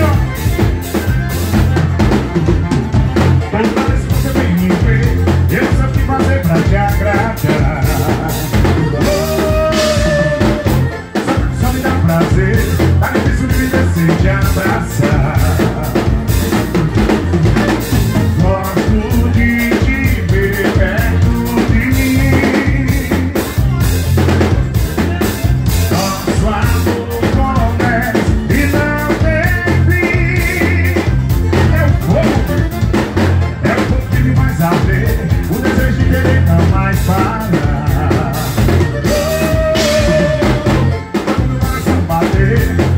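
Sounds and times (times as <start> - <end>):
driving drum beat: 0.0 - 42.9
wavering melody: 7.0 - 11.8.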